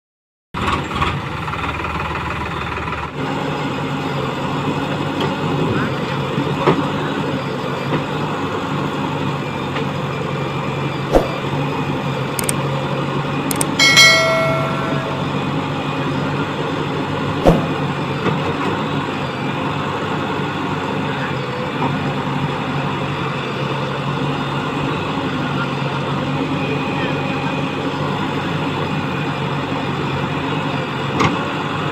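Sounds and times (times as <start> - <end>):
brief ringing tone: 13.5 - 15.7
sharp knocks: 17.4 - 17.9.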